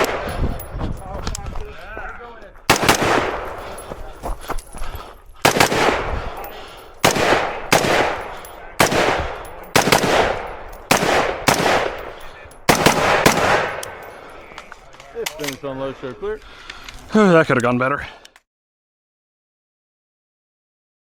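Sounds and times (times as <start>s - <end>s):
rifle shots echoing: 0.0s - 0.7s, 2.7s - 3.8s, 5.4s - 14.6s.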